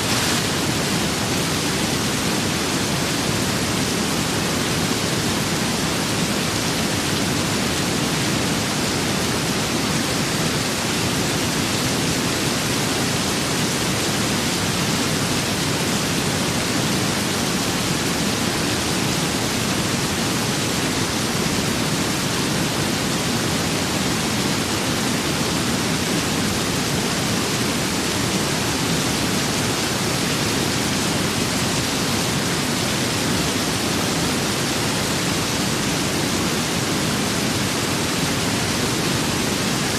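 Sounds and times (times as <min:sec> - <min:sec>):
rain and wind hiss: 0:00.0 - 0:39.9.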